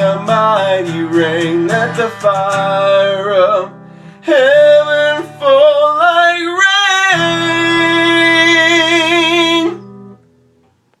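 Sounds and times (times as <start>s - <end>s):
person singing with vibrato: 0.0s - 10.0s
guitar accompaniment: 0.0s - 11.0s.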